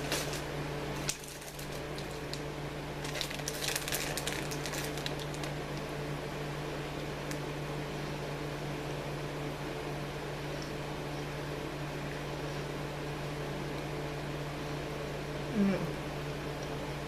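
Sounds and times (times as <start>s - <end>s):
candy bag crinkling: 0.0s - 5.9s
low electrical hum: 0.0s - 17.0s.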